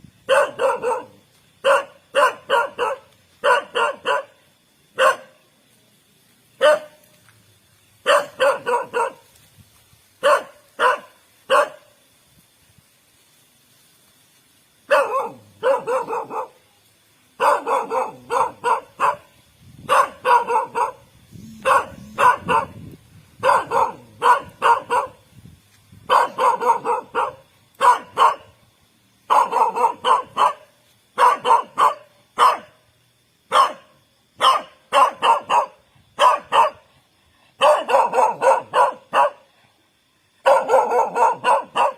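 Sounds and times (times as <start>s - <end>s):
dog barking: 0.3s - 4.4s, 5.0s - 5.4s, 6.6s - 7.0s, 8.0s - 9.3s, 10.2s - 11.9s, 14.9s - 16.6s, 17.4s - 19.3s, 19.9s - 21.0s, 21.6s - 22.8s, 23.4s - 25.2s, 26.1s - 28.5s, 29.3s - 32.8s, 33.5s - 36.9s, 37.6s - 39.5s, 40.4s - 41.9s.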